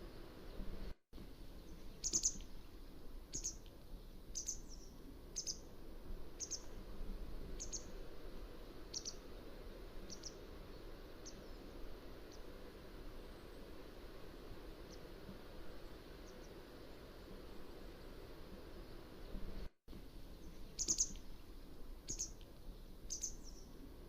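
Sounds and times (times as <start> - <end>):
steady background hiss: 0.0 - 24.0.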